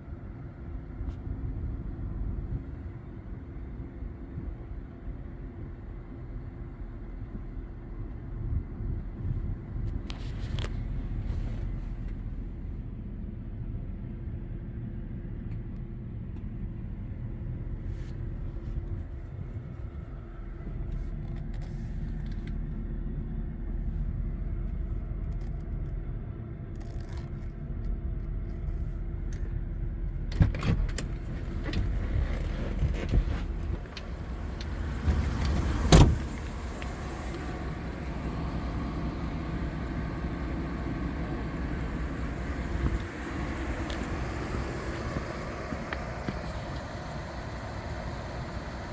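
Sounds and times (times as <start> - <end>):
engine humming: 0.0 - 48.9
loud thump: 35.0 - 36.4.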